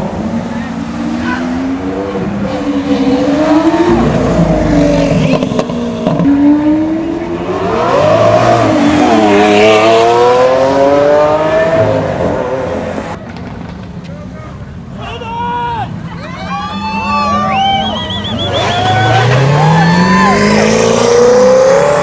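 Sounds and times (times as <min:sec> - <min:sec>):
sports car engine revving: 0:00.1 - 0:13.2, 0:18.7 - 0:22.0.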